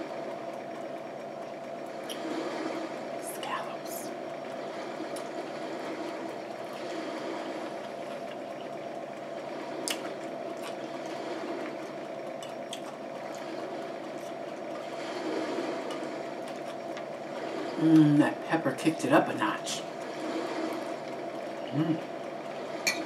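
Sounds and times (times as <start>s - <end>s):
person chewing food: 12.4s - 13.5s.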